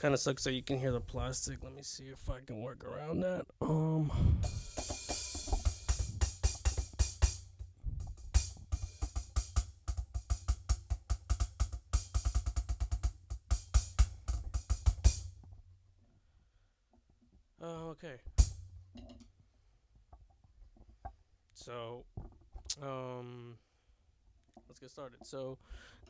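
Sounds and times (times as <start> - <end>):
low drum thumps: 0.0 - 1.7, 4.3 - 15.8, 18.3 - 19.1
electronic hi-hat fast pattern: 4.4 - 15.4.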